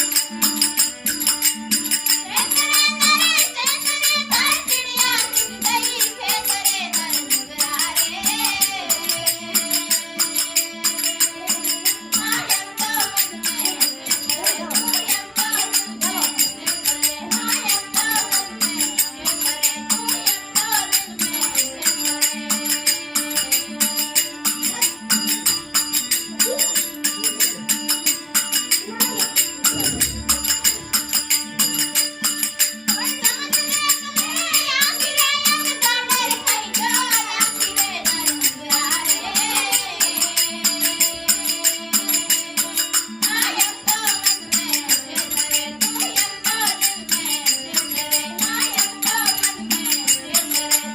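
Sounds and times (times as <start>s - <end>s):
jingling percussion beat: 0.0s - 50.9s
person singing: 2.2s - 25.6s, 26.3s - 32.0s.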